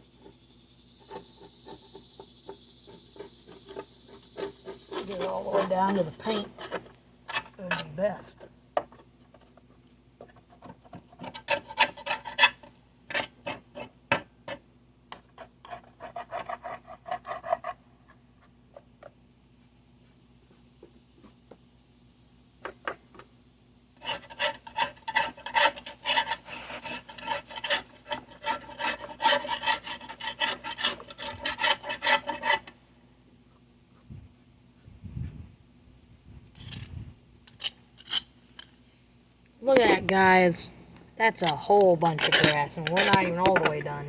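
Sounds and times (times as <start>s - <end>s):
scraper scraping metal mower deck: 2.8s - 8.4s, 24.0s - 32.8s, 41.4s - 43.9s.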